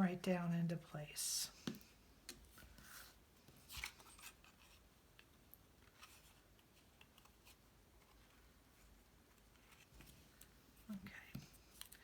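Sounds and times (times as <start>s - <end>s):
rustling of cardstock: 2.6s - 4.9s, 5.7s - 12.0s
light ticks of cardstock: 3.7s - 12.0s.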